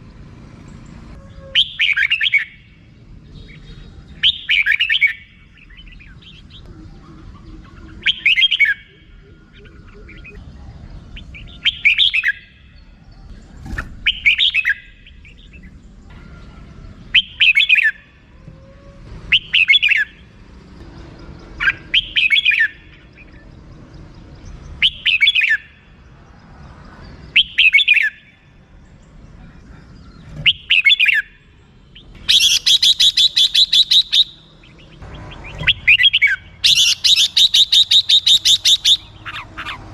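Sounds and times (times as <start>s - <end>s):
bird chattering calls: 1.6s - 2.6s, 3.5s - 10.4s, 13.6s - 15.7s, 19.3s - 20.2s, 21.6s - 23.4s, 30.0s - 39.9s.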